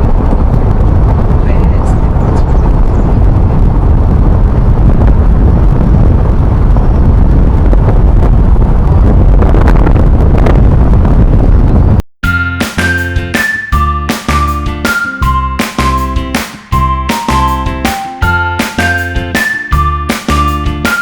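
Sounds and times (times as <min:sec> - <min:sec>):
vehicle driving rumble: 0:00.0 - 0:12.0
wind buffeting microphone: 0:00.0 - 0:12.0.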